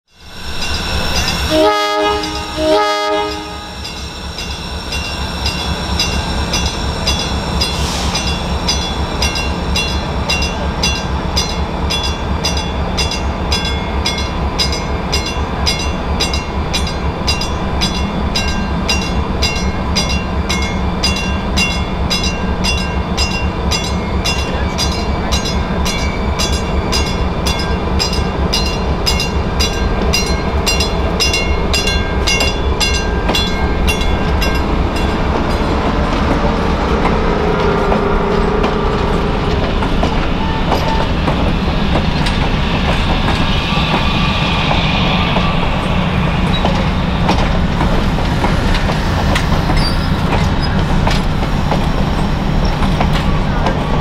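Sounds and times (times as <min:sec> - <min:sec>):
train bell ringing: 0:00.2 - 0:35.9
diesel locomotive rumble: 0:00.2 - 0:54.0
train horn blasts: 0:01.5 - 0:03.9, 0:35.6 - 0:41.2.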